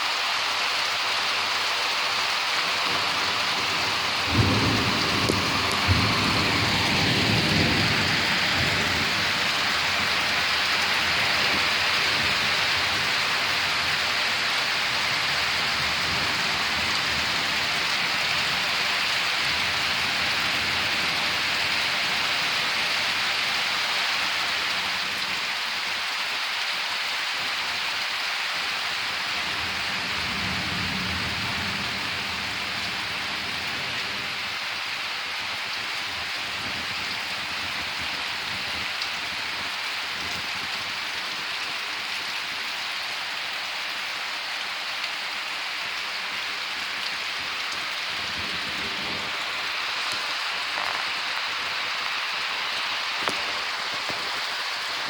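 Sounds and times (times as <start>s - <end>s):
heavy rain pouring: 0.0s - 55.0s
low thunder rumble: 2.7s - 13.2s.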